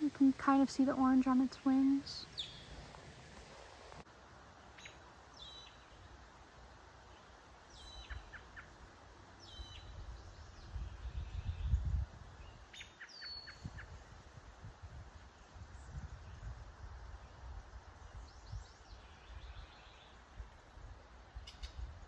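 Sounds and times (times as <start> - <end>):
faint background hiss: 0.0 - 22.0
blackbird calling: 2.0 - 2.8, 12.7 - 13.9.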